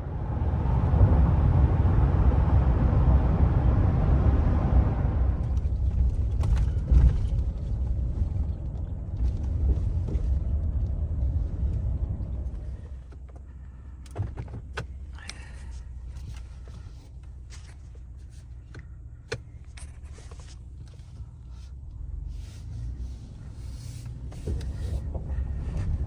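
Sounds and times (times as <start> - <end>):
car road and wind noise: 0.0 - 26.0.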